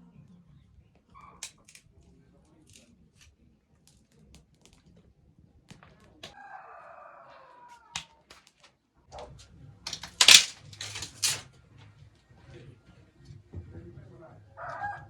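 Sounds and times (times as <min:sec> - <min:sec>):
rooster crowing: 0:06.4 - 0:07.9, 0:14.6 - 0:15.0
loud cracks and rustles: 0:09.9 - 0:11.4.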